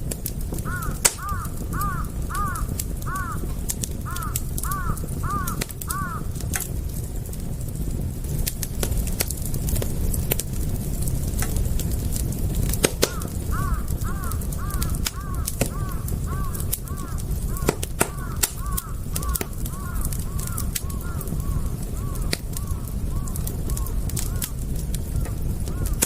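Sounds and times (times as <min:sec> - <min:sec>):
fire crackling: 0:00.0 - 0:26.0
bird calling: 0:00.7 - 0:03.4, 0:13.0 - 0:24.4.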